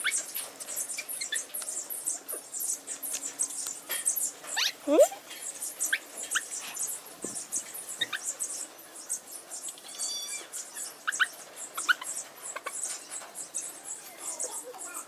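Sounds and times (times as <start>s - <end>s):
puppies squeaking and whimpering: 9.8s - 13.0s.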